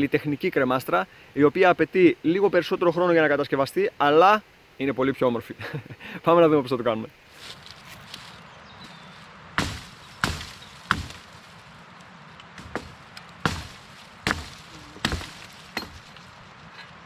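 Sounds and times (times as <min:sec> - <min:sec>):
wood being chopped: 0:09.6 - 0:11.5, 0:12.4 - 0:16.3.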